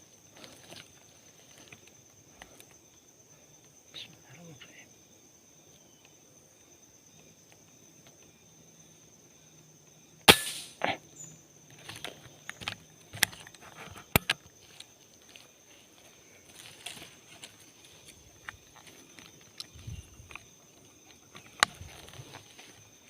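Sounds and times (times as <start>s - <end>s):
high-pitched insect drone: 0.0s - 23.0s
air rifle shot: 10.3s - 10.8s
small clicks and knocks: 11.8s - 14.9s.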